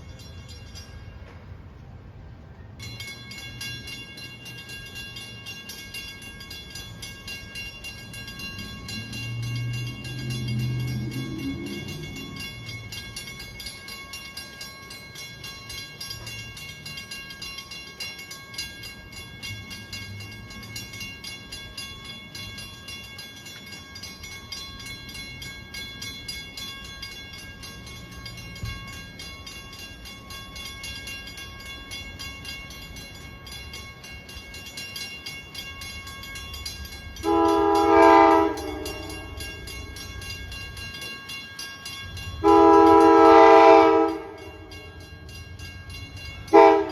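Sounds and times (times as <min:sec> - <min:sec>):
train low rumble: 0:00.0 - 0:46.9
locomotive horn blast: 0:37.2 - 0:39.4, 0:42.4 - 0:44.4, 0:46.5 - 0:46.9.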